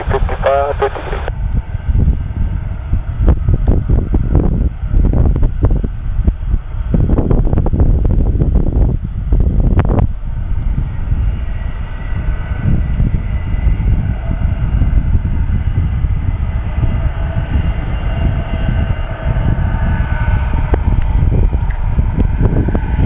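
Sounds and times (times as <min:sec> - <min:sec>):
jet engines whining: 0:00.0 - 0:23.0
wind rumble on microphone: 0:00.0 - 0:23.0.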